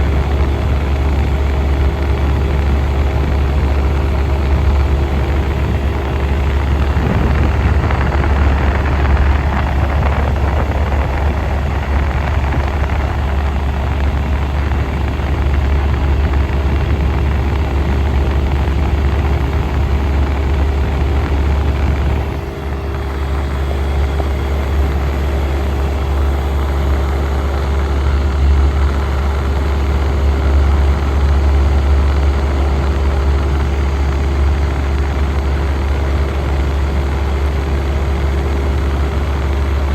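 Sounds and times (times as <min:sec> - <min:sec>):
air conditioner humming and whirring: 0:00.0 - 0:39.9.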